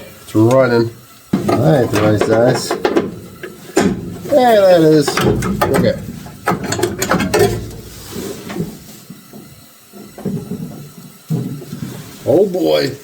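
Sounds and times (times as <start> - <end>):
metal scraping: 1.3 - 9.1.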